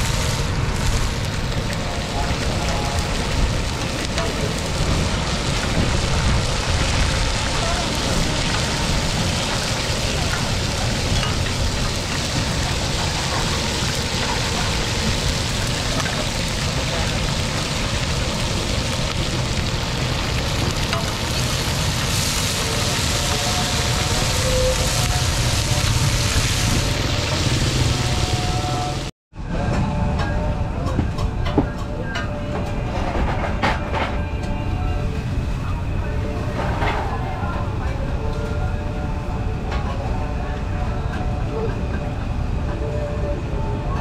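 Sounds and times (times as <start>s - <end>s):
hot oil sizzling: 0.0s - 29.1s.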